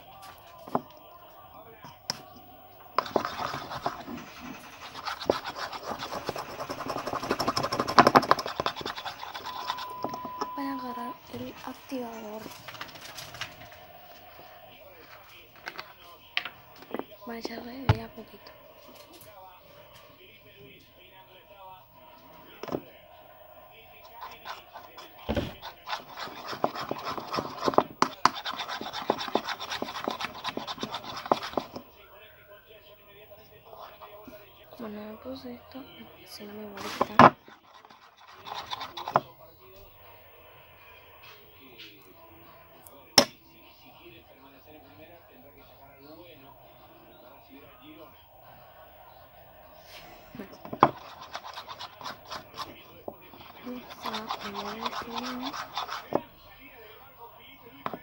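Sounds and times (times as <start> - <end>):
spoon stirring slime in bowl: 0.0 - 21.5, 22.1 - 40.0, 42.8 - 58.0
slime scraping and clicking: 3.0 - 10.8, 24.3 - 31.8, 36.8 - 39.3, 50.8 - 56.3.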